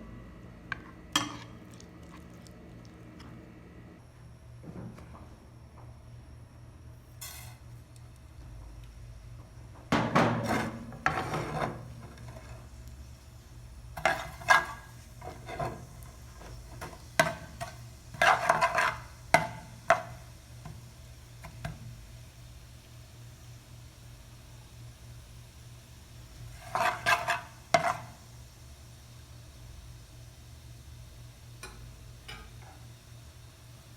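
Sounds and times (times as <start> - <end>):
kitchen utensils scraping and knocking: 10.0 - 12.6, 14.0 - 20.1, 26.5 - 28.1.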